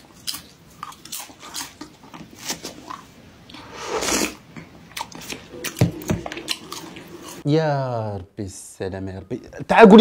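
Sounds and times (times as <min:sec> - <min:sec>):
slurp from a bowl of soup: 0:03.6 - 0:04.4.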